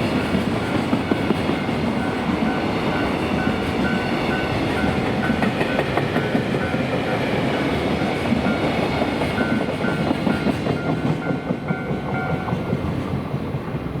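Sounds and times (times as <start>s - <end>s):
train wheels clacking over rail joints: 4.8s - 7.2s, 8.2s - 13.1s.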